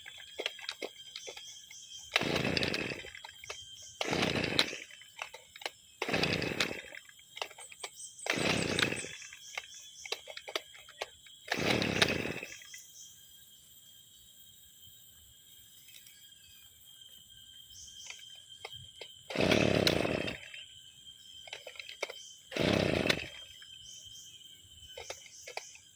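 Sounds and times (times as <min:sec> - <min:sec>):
brushcutter engine pull-starting: 0:00.0 - 0:12.8, 0:18.0 - 0:20.7, 0:21.4 - 0:24.0, 0:24.9 - 0:25.9.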